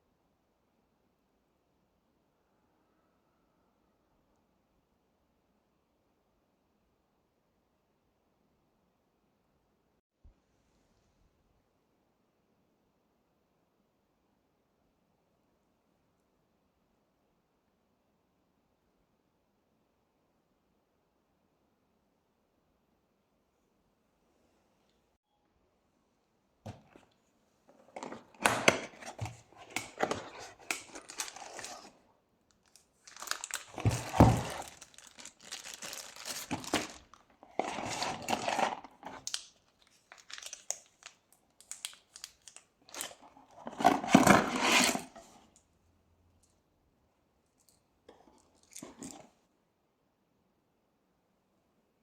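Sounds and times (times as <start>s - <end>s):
crinkling and scraping: 26.7s - 45.6s, 47.6s - 49.5s.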